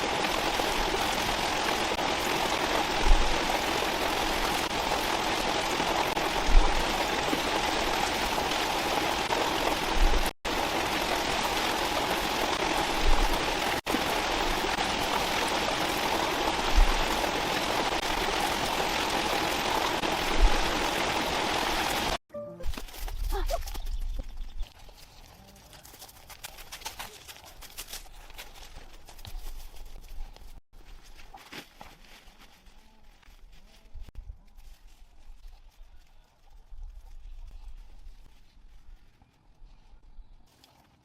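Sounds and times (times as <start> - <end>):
rushing water: 0.0 - 22.2.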